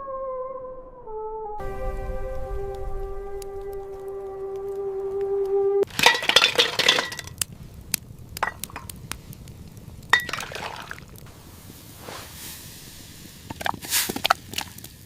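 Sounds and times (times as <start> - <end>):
dishes clinking: 5.9 - 7.4, 8.4 - 8.9, 10.2 - 10.9.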